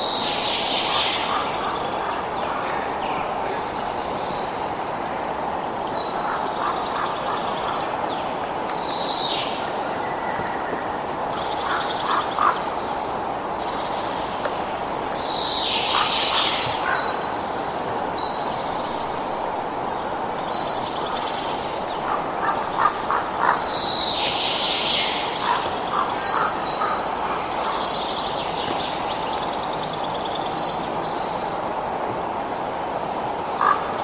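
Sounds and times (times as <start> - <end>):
birds chirping and calling: 0.6 - 4.2.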